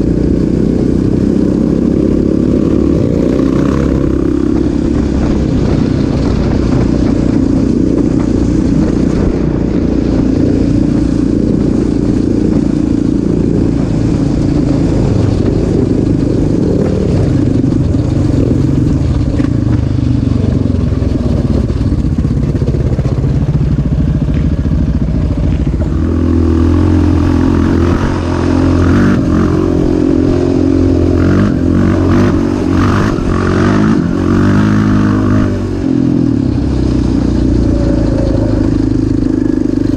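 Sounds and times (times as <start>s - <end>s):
off-road vehicle engine revving: 0.0s - 9.4s, 25.3s - 39.9s.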